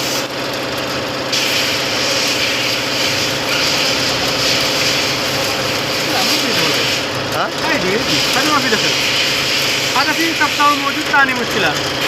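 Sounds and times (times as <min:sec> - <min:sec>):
car engine idling: 0:00.3 - 0:12.0
hiss: 0:01.3 - 0:07.1, 0:08.0 - 0:11.0.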